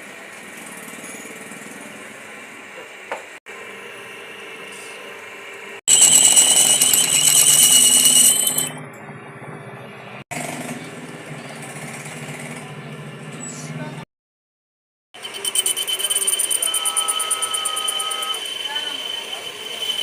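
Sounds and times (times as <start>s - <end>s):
power tool pulsing whine: 5.9s - 8.8s, 15.2s - 20.0s
quieter steady machine noise: 15.2s - 20.0s.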